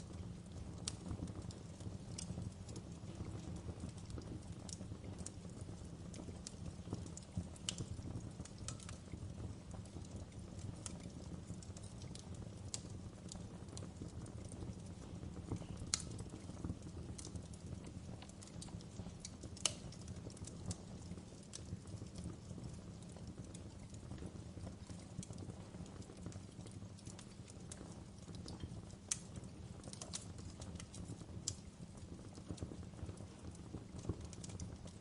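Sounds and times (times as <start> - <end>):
low rumble of burning: 0.0 - 35.0
wood fire crackling and popping: 0.0 - 35.0.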